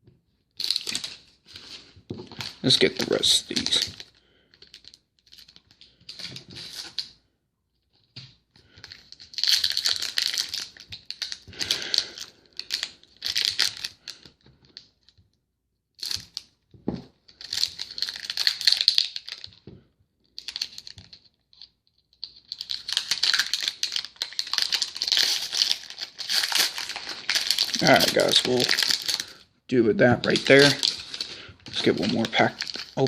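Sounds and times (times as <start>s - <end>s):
card pack wrappers tearing: 2.4s - 4.1s, 9.1s - 14.2s, 17.4s - 19.5s, 22.4s - 29.4s, 30.0s - 33.0s.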